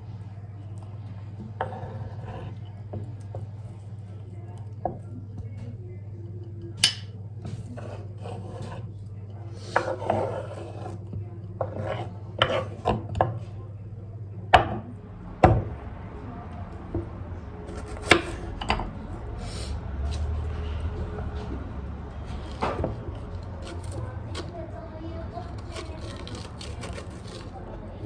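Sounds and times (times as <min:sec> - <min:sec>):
objects scraping and rubbing on wood: 0:01.4 - 0:04.0, 0:07.5 - 0:13.5, 0:17.7 - 0:24.6, 0:25.4 - 0:27.8.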